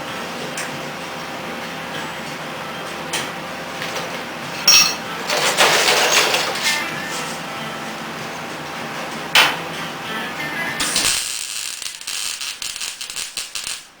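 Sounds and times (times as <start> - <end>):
metal scraping clatter: 3.8 - 7.4
sharp metallic clanks: 4.6 - 6.8.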